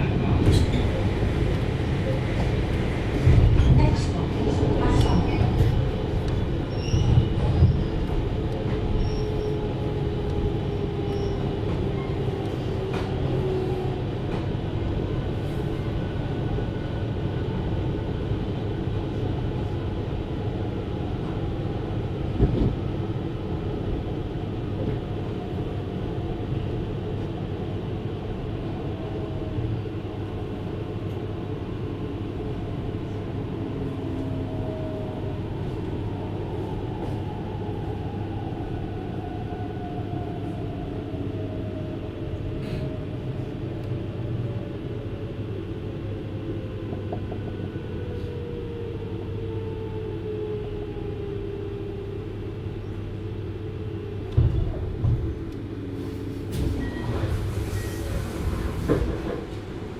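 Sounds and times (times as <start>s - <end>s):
train wheels rumbling: 53.9s - 59.9s.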